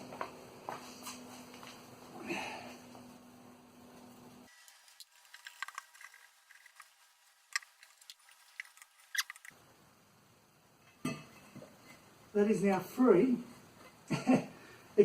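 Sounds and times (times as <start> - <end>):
stud clicking and scraping: 4.9 - 9.6.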